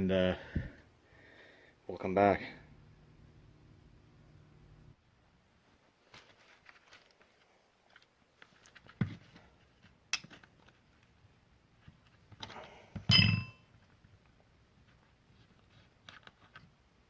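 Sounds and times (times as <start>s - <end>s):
ringing metallic clink: 13.1s - 13.6s.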